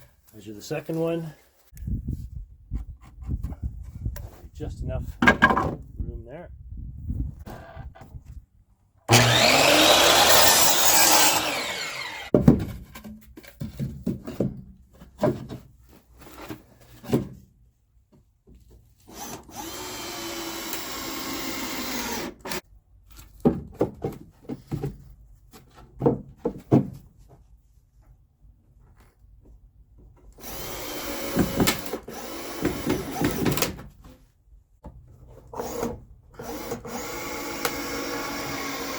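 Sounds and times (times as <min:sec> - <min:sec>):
boards knocking and clattering: 0:05.2 - 0:05.8, 0:11.6 - 0:15.7, 0:23.4 - 0:27.0
power tool cutting wood: 0:09.1 - 0:12.3, 0:19.1 - 0:22.6, 0:30.4 - 0:33.7, 0:35.6 - 0:38.9.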